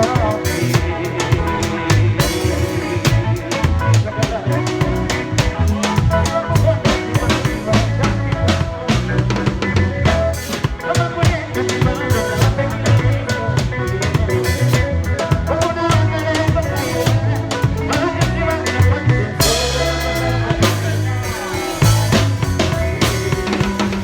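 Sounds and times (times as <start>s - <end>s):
bass line: 0.0s - 24.0s
drum kit groove: 0.0s - 24.0s
live band playing: 0.0s - 24.0s.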